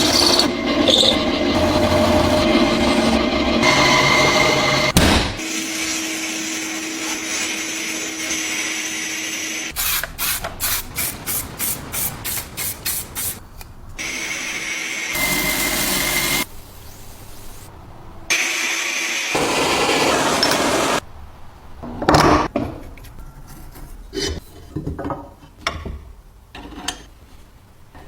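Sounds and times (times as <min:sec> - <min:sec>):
power tool running: 0:00.0 - 0:10.1, 0:14.0 - 0:16.4, 0:18.3 - 0:21.0.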